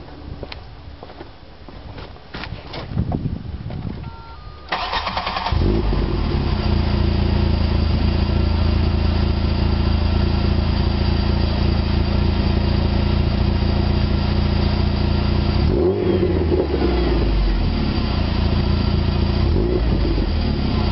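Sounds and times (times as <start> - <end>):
brief electronic beep: 4.0 - 4.8
car engine starting and idling: 4.4 - 20.9.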